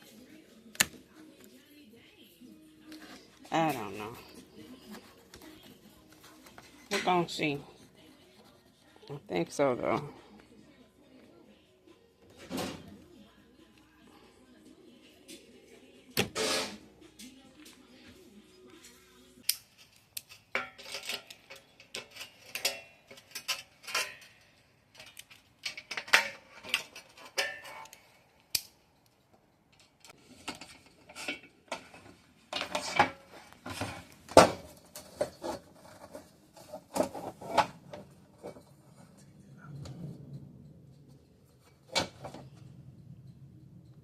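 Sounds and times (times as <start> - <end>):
metal parts and tools clinking: 19.4 - 28.7, 29.7 - 44.0.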